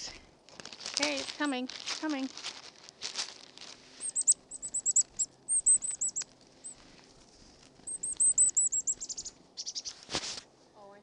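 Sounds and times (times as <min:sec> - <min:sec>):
rustle: 0:00.0 - 0:11.0
small birds chirping: 0:04.0 - 0:10.1.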